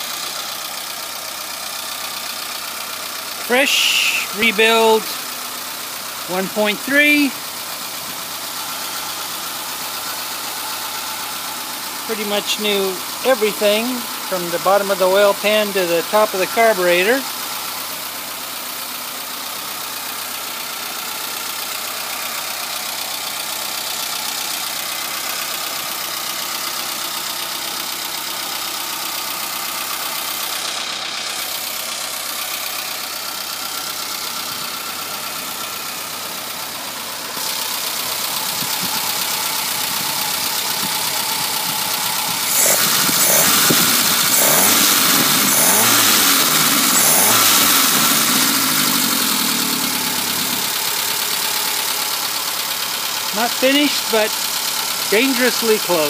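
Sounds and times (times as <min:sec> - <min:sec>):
car engine idling and revving: 0:00.0 - 0:56.0.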